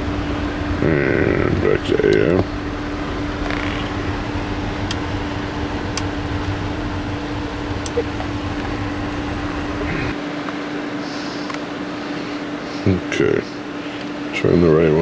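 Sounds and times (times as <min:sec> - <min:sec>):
fan-like hum and hiss: 0:00.0 - 0:15.0
radio knobs clicking: 0:00.2 - 0:10.2.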